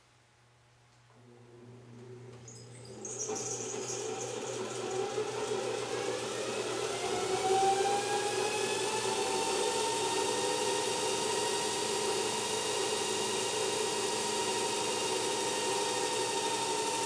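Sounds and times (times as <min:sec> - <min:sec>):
electric motor whine rising: 0:02.8 - 0:17.0.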